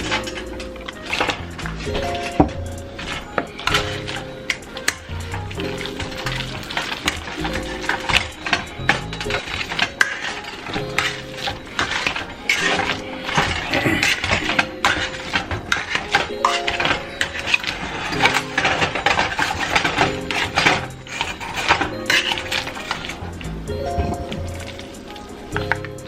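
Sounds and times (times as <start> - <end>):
background music with held chords: 0.0 - 26.0
utensil scraping in a pot: 0.0 - 26.0.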